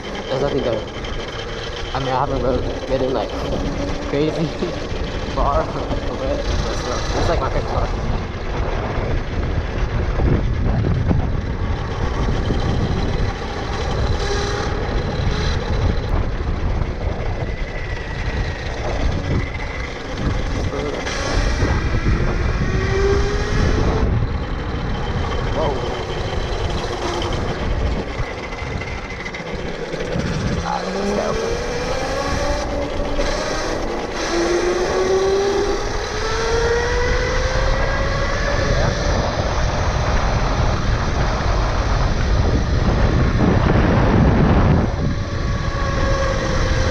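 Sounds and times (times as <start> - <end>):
electric motor whining: 0.0 - 46.9
wind buffeting microphone: 0.0 - 46.9.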